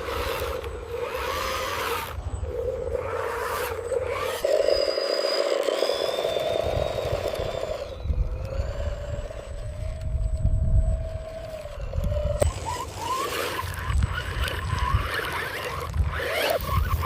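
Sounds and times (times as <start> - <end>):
small electric motor whining: 0.0 - 17.0.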